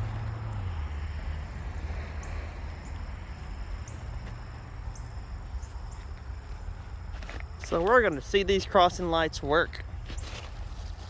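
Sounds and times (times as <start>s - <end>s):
faint insect chirping: 0.1s - 8.9s.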